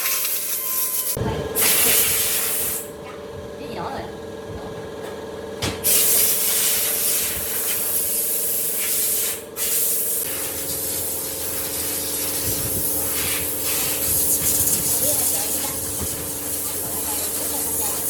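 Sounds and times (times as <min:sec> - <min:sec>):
power tool motor humming: 0:06.0 - 0:18.0.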